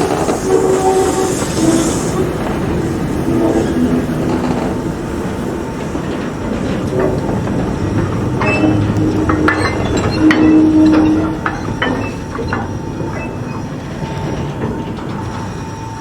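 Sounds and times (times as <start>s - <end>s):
train wheels clattering on track: 0.0s - 16.0s
metallic clanks: 6.6s - 15.8s.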